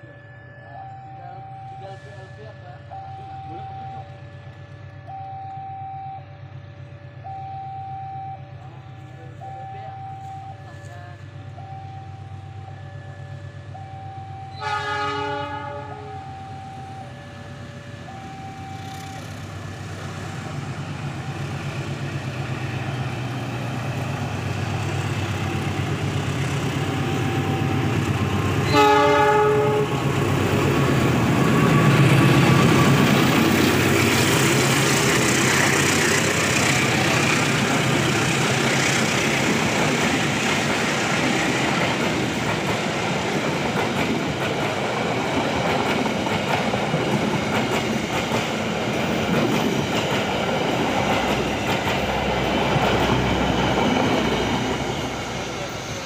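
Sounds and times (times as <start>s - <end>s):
level crossing alarm: 0.0s - 19.7s
locomotive engine: 0.0s - 56.0s
locomotive horn blasts: 14.5s - 16.3s, 28.6s - 30.1s.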